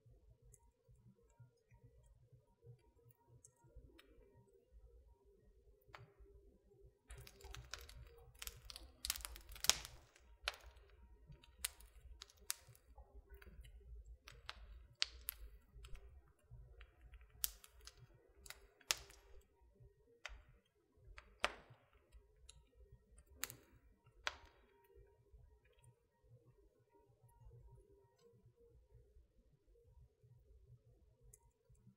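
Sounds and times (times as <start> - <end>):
fire crackling and popping: 7.1 - 19.6, 20.2 - 22.6, 23.2 - 24.8.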